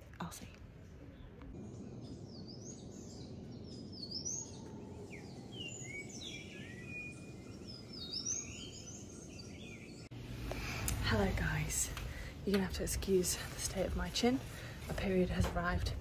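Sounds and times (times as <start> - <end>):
birds calling and singing: 1.1 - 10.1.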